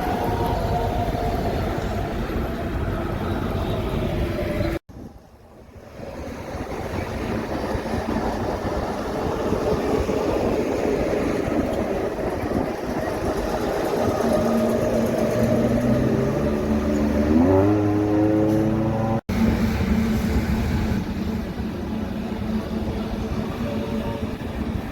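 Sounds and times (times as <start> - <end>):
truck traffic passing: 0.0 - 4.8, 5.8 - 24.8
engine accelerating: 12.1 - 21.7.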